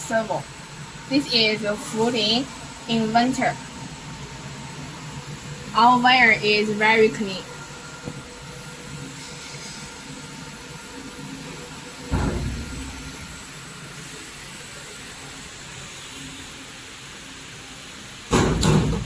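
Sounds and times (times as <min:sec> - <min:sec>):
low hum and hiss: 0:00.0 - 0:19.0
dull thump: 0:12.1 - 0:13.5.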